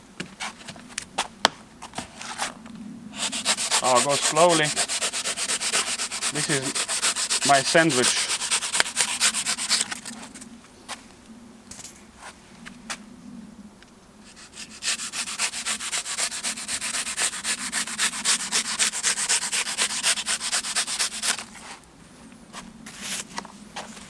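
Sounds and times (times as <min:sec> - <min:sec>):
knife sawing through foam: 0:03.2 - 0:10.2, 0:14.3 - 0:21.6.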